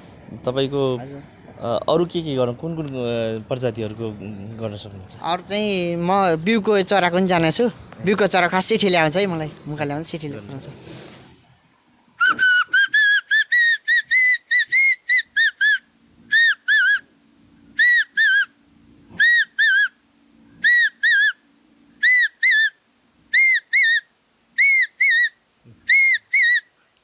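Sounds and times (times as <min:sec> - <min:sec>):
man whistling bird call: 0:12.2 - 0:20.0, 0:20.6 - 0:26.7.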